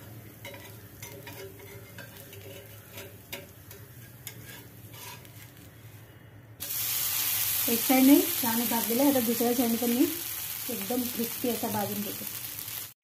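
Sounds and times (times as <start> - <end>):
faint sizzle on a griddle: 6.6 - 13.0.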